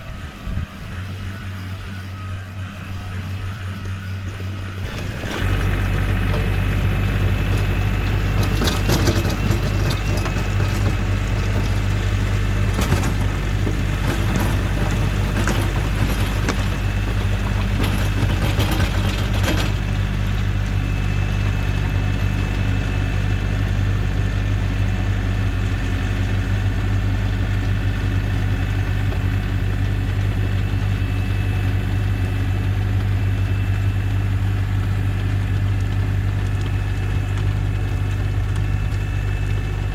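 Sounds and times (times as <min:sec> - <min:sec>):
tractor diesel engine running: 0:00.0 - 0:39.9
clattering knocks: 0:04.8 - 0:20.5.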